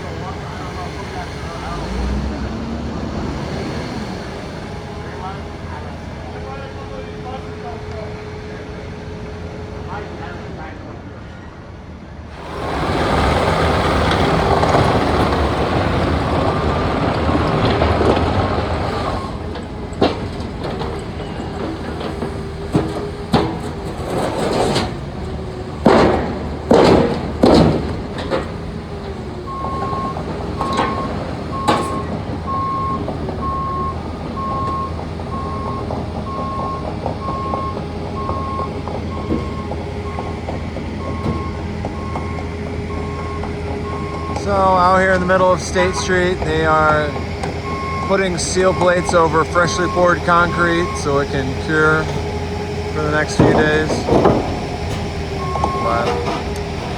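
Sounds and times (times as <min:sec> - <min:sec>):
diesel construction machinery: 0:00.0 - 0:56.9
loud rushing noise: 0:12.3 - 0:19.4
backup alarm beeping: 0:29.5 - 0:46.3, 0:47.0 - 0:52.2, 0:55.4 - 0:56.3.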